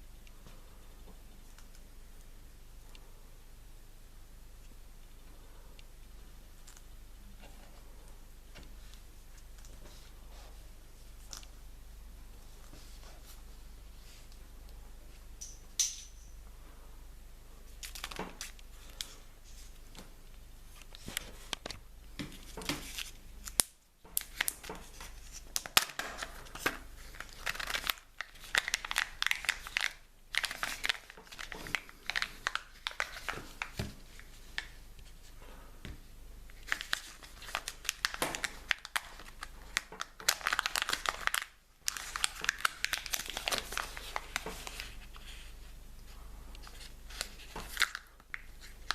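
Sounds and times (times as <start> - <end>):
wrapping crinkling and tearing: 17.8 - 19.9, 22.4 - 35.3, 36.5 - 45.6, 46.5 - 48.9.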